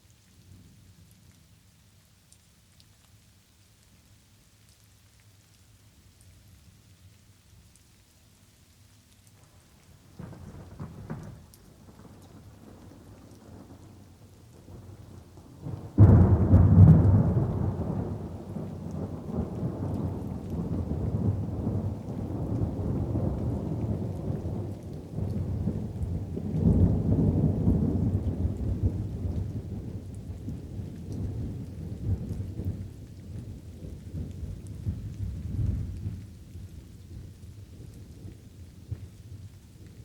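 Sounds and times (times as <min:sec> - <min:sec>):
light rain: 0:00.0 - 0:40.0
low rumble of thunder: 0:10.0 - 0:40.0
loud thunderclap: 0:15.9 - 0:24.6.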